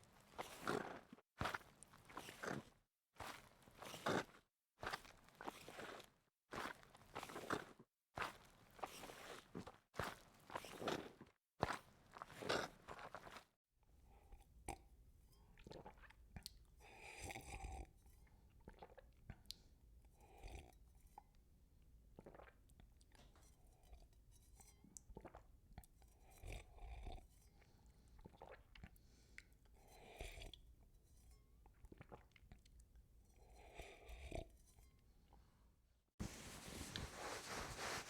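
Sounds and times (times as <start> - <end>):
mouth chewing crunchy food: 0.1 - 13.5.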